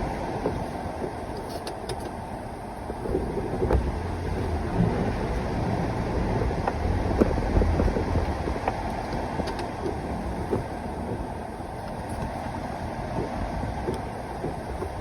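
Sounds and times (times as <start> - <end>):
vehicle engine running: 2.2 - 15.0
small knocks and clicks: 6.6 - 11.2.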